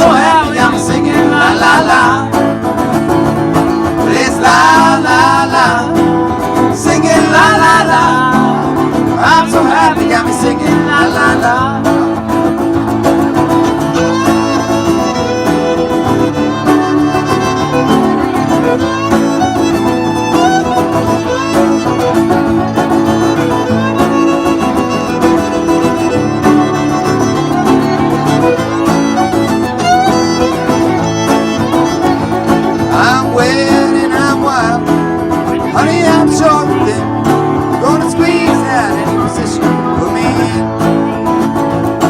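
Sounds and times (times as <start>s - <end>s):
fiddle melody: 0.0s - 42.0s
string band playing: 0.0s - 42.0s.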